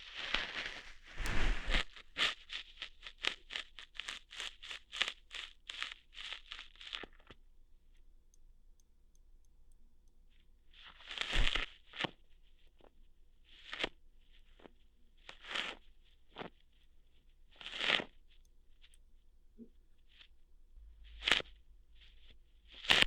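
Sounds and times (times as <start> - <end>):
crackly hair plucking: 0.0 - 7.4, 10.8 - 12.9, 13.5 - 16.8, 17.5 - 19.0, 22.7 - 23.0.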